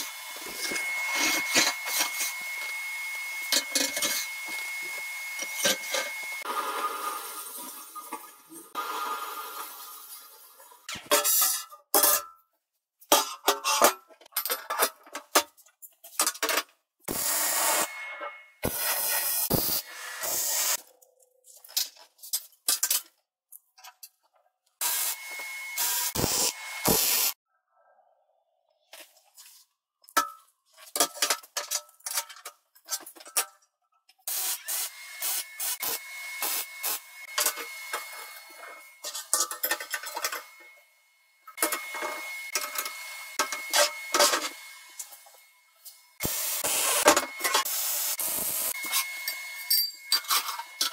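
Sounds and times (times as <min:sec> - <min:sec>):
hissing bursts: 0:18.6 - 0:20.8, 0:24.8 - 0:27.4.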